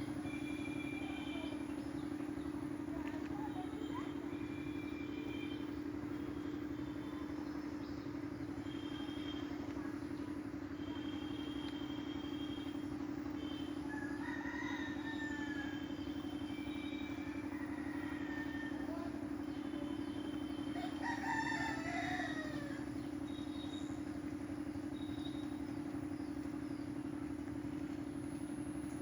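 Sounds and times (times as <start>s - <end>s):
motor engine hum pulsing: 0.0s - 29.0s
bird calling: 6.8s - 29.0s.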